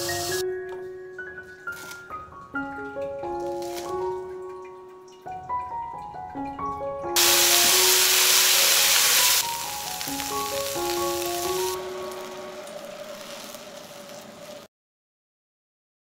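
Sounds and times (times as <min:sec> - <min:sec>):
food sizzling in hot oil: 0:00.0 - 0:00.4, 0:03.4 - 0:04.0, 0:07.2 - 0:14.7
light background music: 0:00.0 - 0:13.6.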